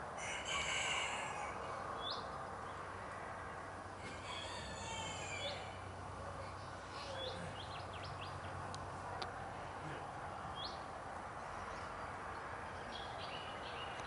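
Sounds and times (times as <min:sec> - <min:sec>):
small birds chirping: 0:06.4 - 0:14.0.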